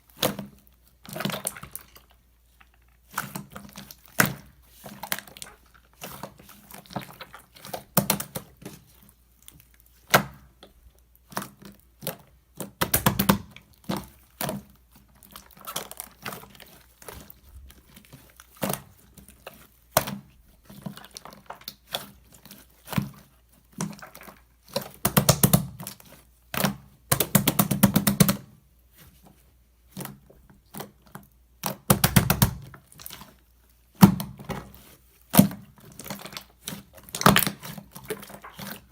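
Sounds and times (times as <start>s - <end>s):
sticky slime squishing: 0.0s - 38.9s
air pockets popping in slime: 11.2s - 22.2s, 23.8s - 28.5s, 30.0s - 33.3s, 33.9s - 38.9s.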